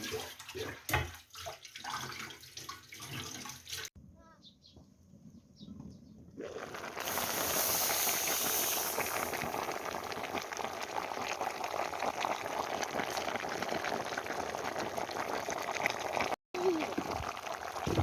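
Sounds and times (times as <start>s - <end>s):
stew bubbling in a pot: 6.3s - 18.0s.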